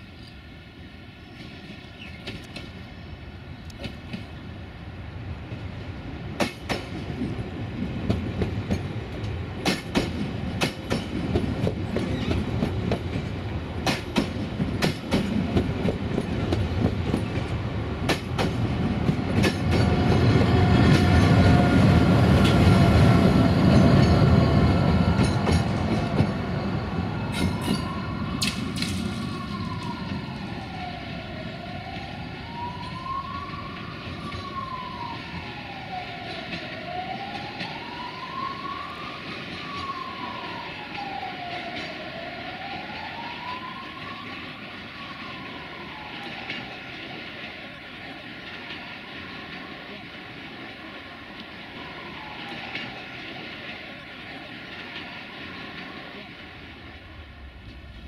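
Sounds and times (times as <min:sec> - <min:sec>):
train rumble: 0:00.0 - 0:58.0
train wheel clicks at rail joints: 0:01.4 - 0:02.8, 0:03.6 - 0:04.3, 0:06.4 - 0:07.3, 0:08.0 - 0:21.3, 0:25.1 - 0:26.4.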